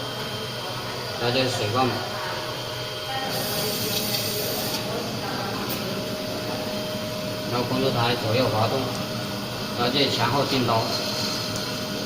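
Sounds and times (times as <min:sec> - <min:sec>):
machine steady tone: 0:00.0 - 0:12.0
coolant spray hissing: 0:03.2 - 0:05.1.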